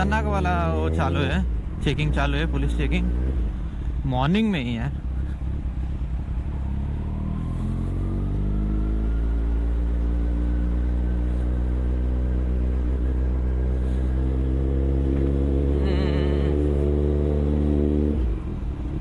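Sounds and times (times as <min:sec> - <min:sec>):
constant low rumble: 0:00.0 - 0:08.0, 0:10.6 - 0:16.9
motorcycle engine accelerating: 0:04.9 - 0:19.0.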